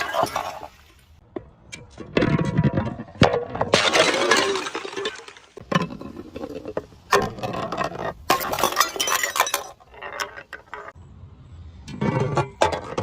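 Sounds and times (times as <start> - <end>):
glass bottles breaking: 3.5 - 5.9, 8.2 - 9.9
glass shards clinking: 8.3 - 9.9.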